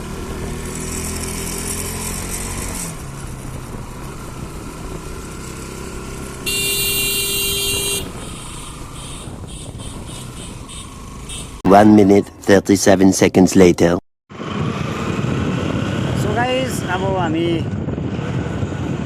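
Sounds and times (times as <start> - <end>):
motorcycle engine: 0.0 - 12.4
motorcycle horn: 6.4 - 11.6.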